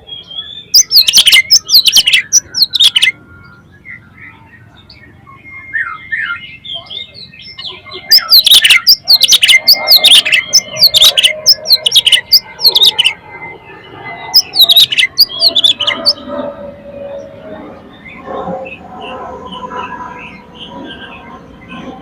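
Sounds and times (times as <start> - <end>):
bird singing whistles and harsh notes: 0.0 - 17.3
bird twittering: 0.0 - 22.0.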